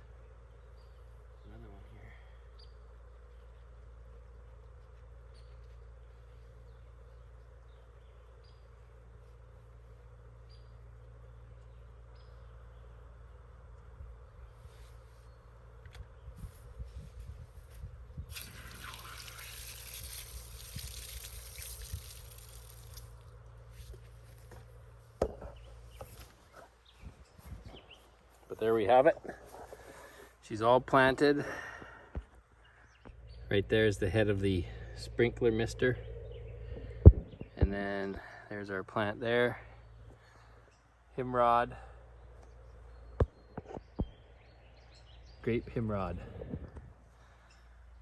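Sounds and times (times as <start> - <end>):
steady low hum: 0.0 - 48.0
water spraying with a hiss: 18.3 - 23.2.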